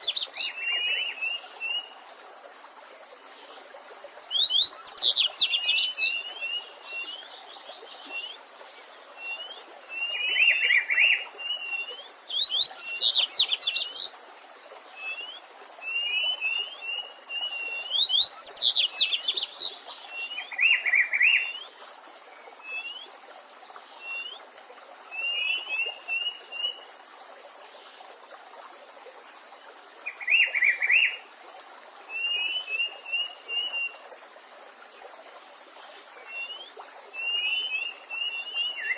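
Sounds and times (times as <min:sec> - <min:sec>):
songbirds singing: 0:00.0 - 0:28.4, 0:29.2 - 0:31.3, 0:32.0 - 0:38.9
faint stream hiss: 0:00.0 - 0:38.9.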